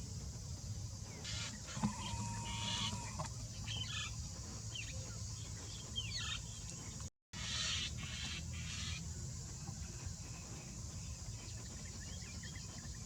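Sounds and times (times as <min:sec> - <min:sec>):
birds calling: 0:00.5 - 0:13.0
steady hiss: 0:06.6 - 0:13.0.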